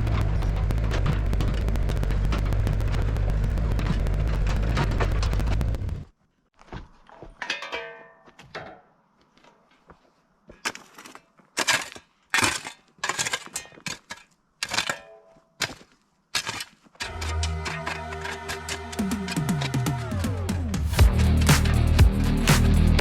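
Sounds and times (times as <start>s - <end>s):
background music: 17.1s - 23.0s.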